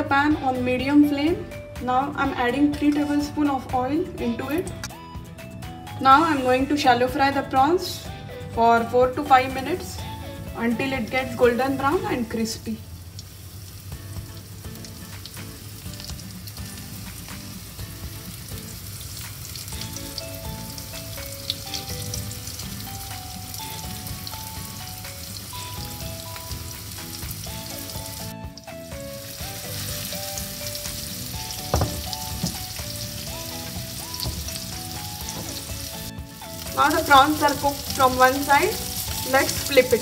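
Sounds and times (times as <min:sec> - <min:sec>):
soft background music: 0:00.0 - 0:40.0
prawns sizzling in hot oil: 0:09.3 - 0:40.0.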